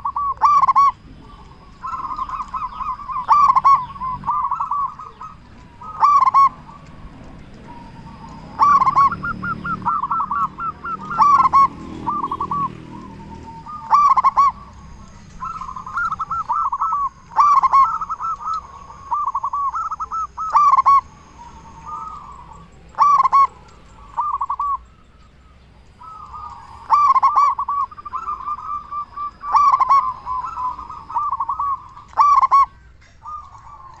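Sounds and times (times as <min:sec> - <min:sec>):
doves cooing: 0:00.0 - 0:34.0.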